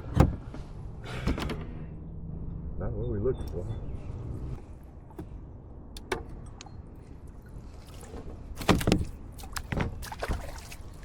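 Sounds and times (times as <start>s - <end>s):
knocks and clatter on kayak: 8.6s - 10.2s.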